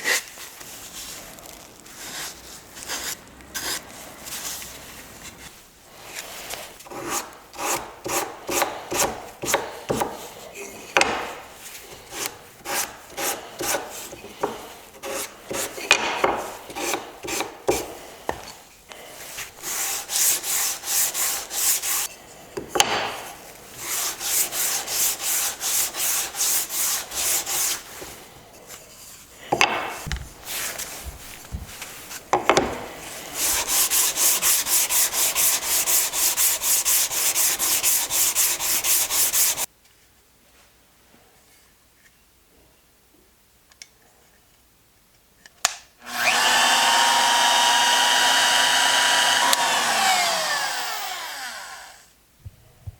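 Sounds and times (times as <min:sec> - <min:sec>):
hand rubbing strokes on wood: 0:19.1 - 0:22.1, 0:23.7 - 0:28.3, 0:30.3 - 0:39.7.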